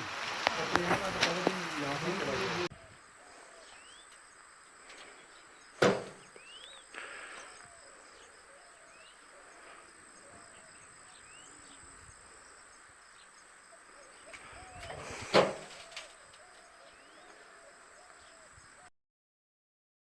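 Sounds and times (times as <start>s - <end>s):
sharp knock: 5.8s - 6.2s
brief rustle: 14.3s - 16.7s.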